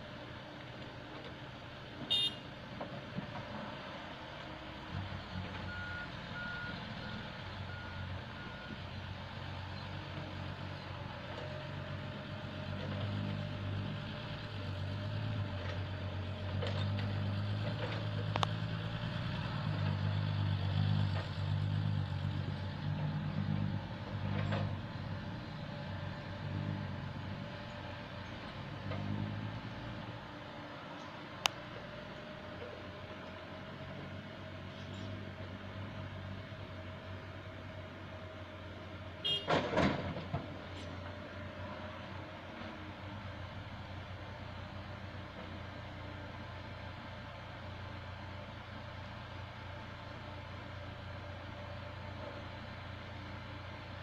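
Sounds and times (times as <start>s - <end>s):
excavator diesel engine working: 0.0s - 54.0s.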